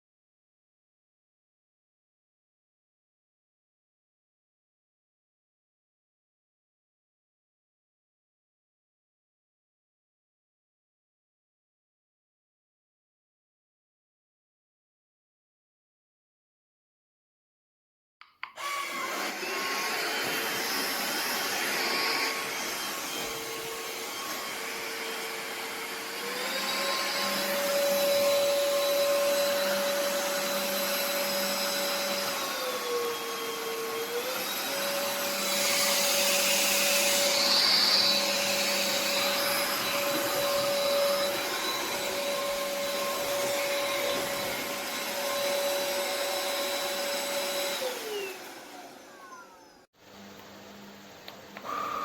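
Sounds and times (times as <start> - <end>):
stick vacuum motor whine: 18.5 - 52.0.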